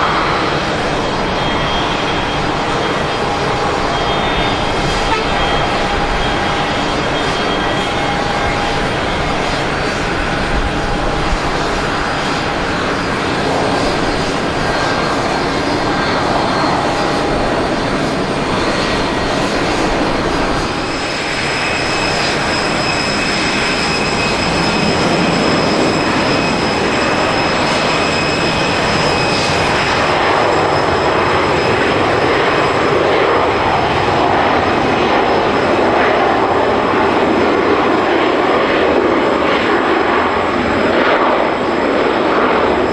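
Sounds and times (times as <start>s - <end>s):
high whine: 0.0s - 42.9s
jet engines running: 0.0s - 42.9s.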